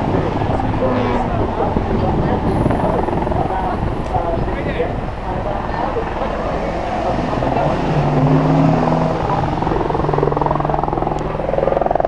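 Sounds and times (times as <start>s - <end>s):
engine droning and pulsing: 0.0s - 12.0s.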